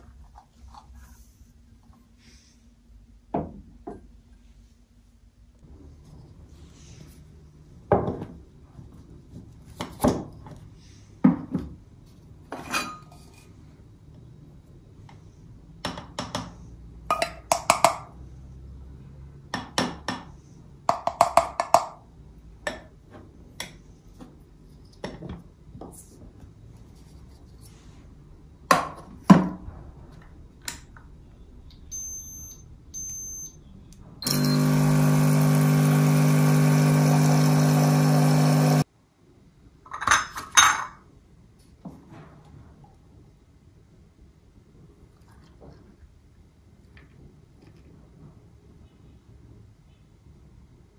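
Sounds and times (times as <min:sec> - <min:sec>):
loud steady motor hum: 0:34.2 - 0:38.8.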